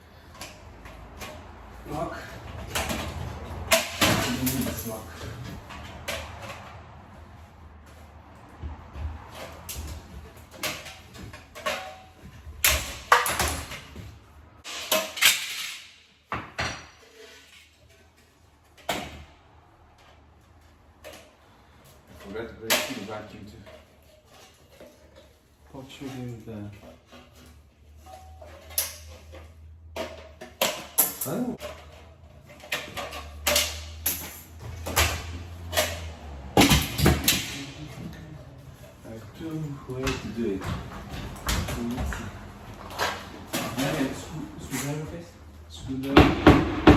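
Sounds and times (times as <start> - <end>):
hard objects knocking and clattering: 7.8 - 15.7, 45.8 - 46.9
knocks and scrapes on metal hood: 46.1 - 46.9.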